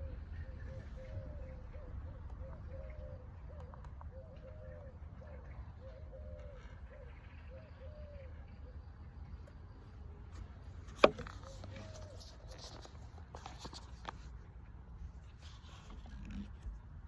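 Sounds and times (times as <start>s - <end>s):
bird calling low notes: 0.0s - 9.6s.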